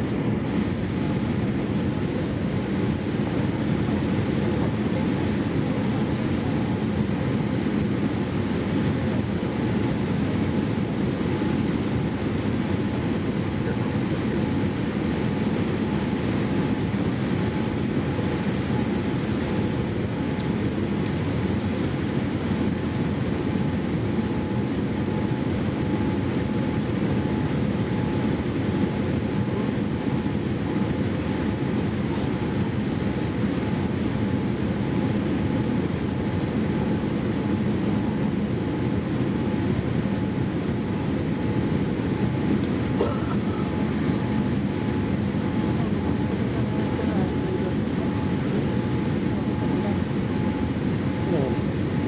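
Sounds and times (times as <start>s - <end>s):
airliner cabin engine drone: 0.0s - 52.0s.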